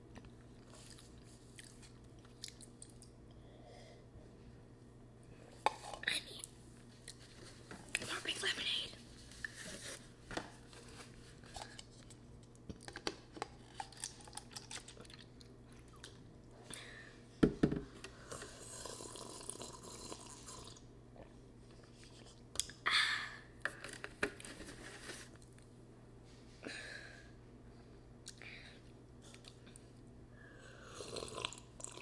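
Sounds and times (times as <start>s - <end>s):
chewing with wet mouth clicks: 0.6s - 3.2s, 13.7s - 16.2s.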